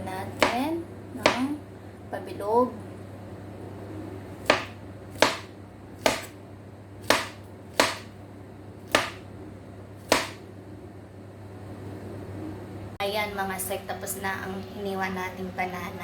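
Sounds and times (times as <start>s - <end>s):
knife slicing banana tapping: 1.2s - 1.4s, 4.4s - 6.4s, 7.0s - 8.1s, 8.9s - 9.2s, 10.0s - 10.4s.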